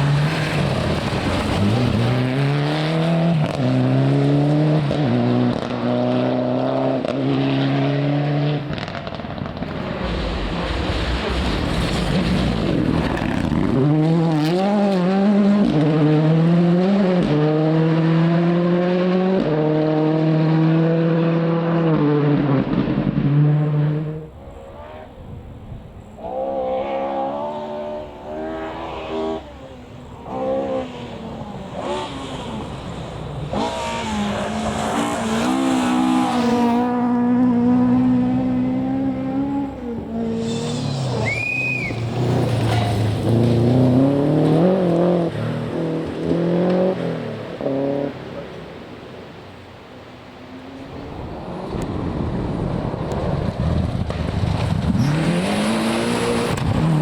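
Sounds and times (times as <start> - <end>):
rally car engines revving: 0.0 - 25.4, 26.0 - 57.0.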